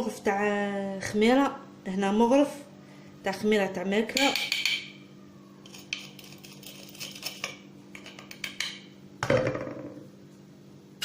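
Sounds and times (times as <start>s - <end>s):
metal spoon scraping bowl: 5.6s - 8.8s.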